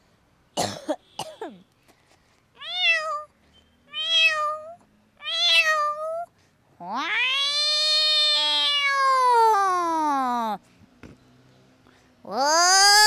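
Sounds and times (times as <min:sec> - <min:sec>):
woman imitating cat meows: 0:04.0 - 0:10.6, 0:12.3 - 0:13.0.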